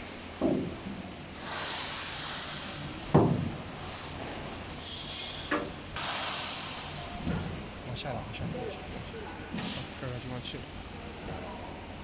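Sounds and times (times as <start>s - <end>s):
laser cutter gas hissing: 1.4s - 3.1s, 4.8s - 7.2s.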